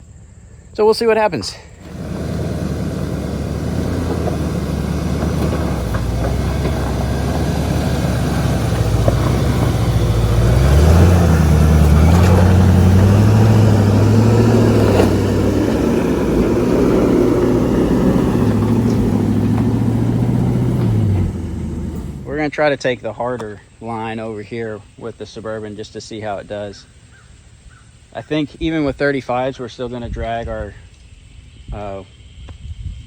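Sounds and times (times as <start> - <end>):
truck engine revving under load: 1.5 - 22.6.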